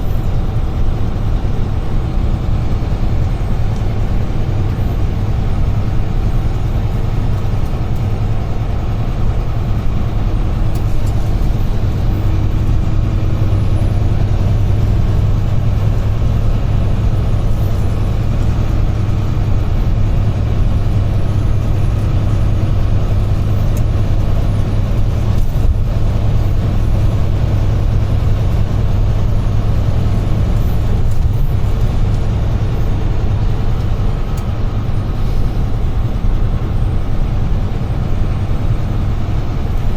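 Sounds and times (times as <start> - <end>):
heavy truck engine drone: 0.0 - 39.9
road and tyre noise: 0.0 - 39.9.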